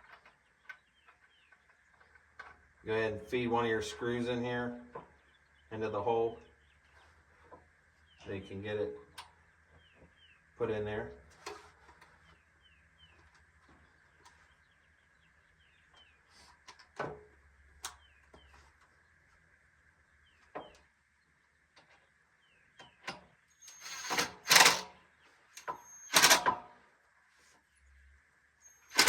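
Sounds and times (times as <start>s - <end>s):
parts clicking and knocking: 22.8s - 24.9s, 25.5s - 26.8s, 28.8s - 29.0s
power drill driving a screw: 23.6s - 24.9s, 25.6s - 26.6s, 28.7s - 29.0s
faint bird chirps: 25.0s - 26.2s, 27.6s - 29.0s.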